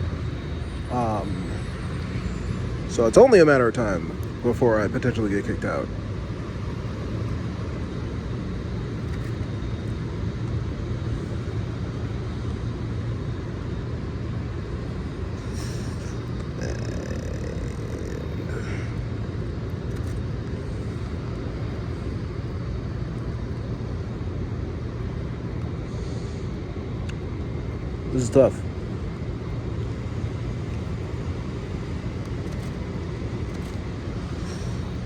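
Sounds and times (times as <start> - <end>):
city traffic rumble: 0.0 - 35.0.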